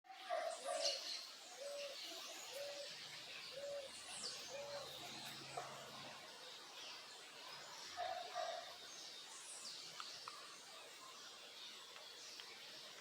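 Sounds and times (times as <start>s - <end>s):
dove cooing: 1.6s - 3.9s.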